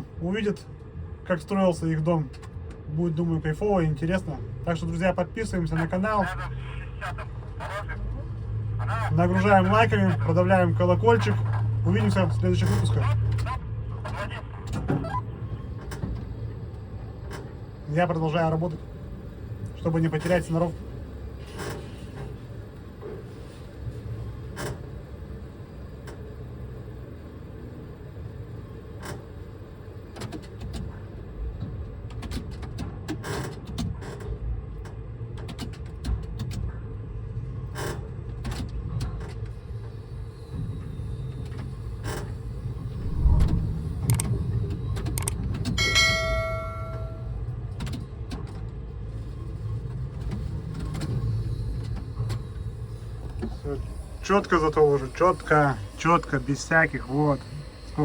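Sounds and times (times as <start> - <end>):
crane drives rumbling: 40.5 - 47.4
ringing tone of several pitches: 45.8 - 47.4.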